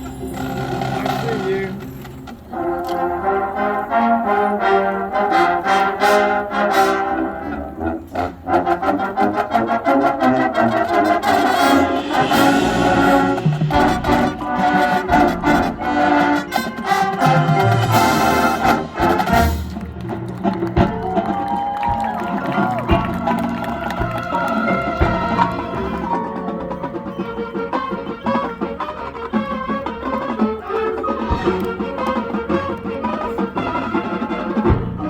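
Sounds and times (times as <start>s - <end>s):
percussion: 0.0s - 3.1s, 10.6s - 35.0s
marching band brass section: 0.0s - 35.0s.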